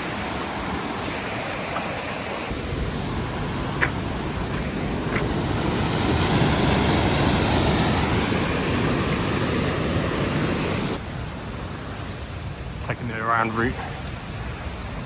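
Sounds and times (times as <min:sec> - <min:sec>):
fast-flowing river rushing: 0:00.0 - 0:11.0
wind buffeting microphone: 0:00.0 - 0:15.0.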